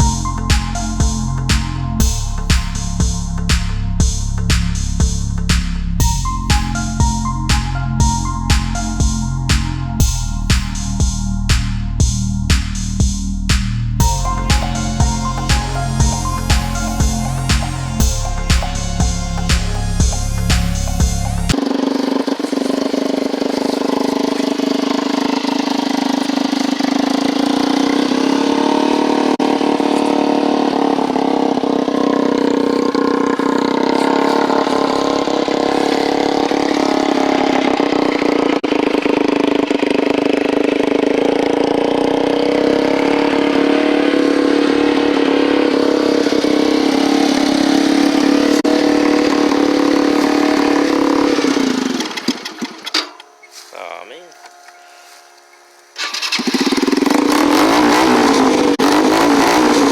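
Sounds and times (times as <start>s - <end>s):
dirt bike engine running: 10.0s - 53.2s, 56.0s - 59.9s.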